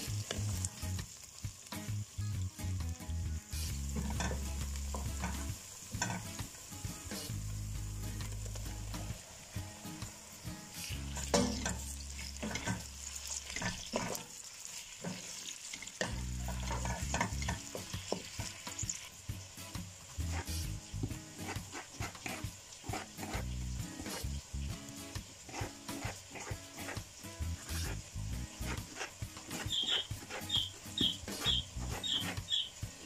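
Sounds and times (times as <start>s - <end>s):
food sizzling in a pan: 0.0s - 33.0s
utensil scraping a pan: 3.6s - 6.4s, 10.7s - 19.1s, 20.2s - 24.3s, 25.5s - 32.7s.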